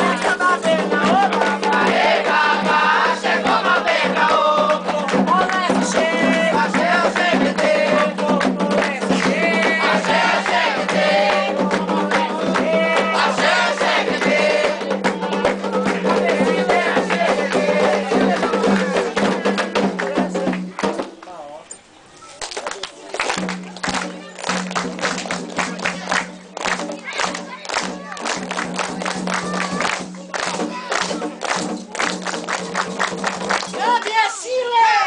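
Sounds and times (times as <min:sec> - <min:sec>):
group of voices singing: 0:00.0 - 0:20.9
percussion: 0:00.0 - 0:35.0.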